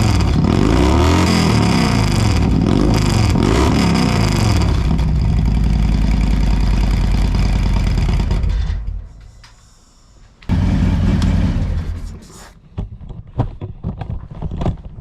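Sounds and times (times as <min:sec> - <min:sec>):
motorcycle engine idling: 0:01.6 - 0:09.1, 0:10.5 - 0:12.2.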